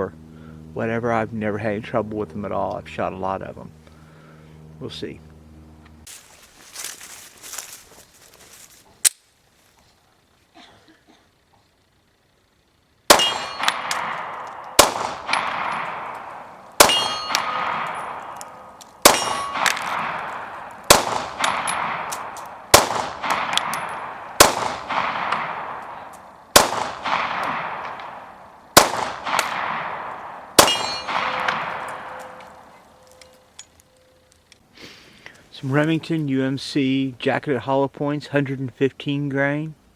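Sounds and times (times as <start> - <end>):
pistol shots: 13.1 - 33.2
ringing echo: 13.1 - 34.2.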